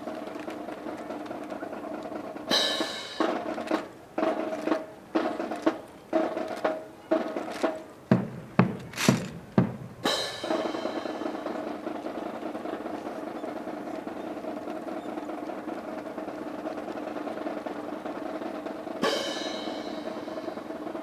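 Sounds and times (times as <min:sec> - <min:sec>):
sharp percussive strikes: 0:08.1 - 0:11.8, 0:19.0 - 0:21.0.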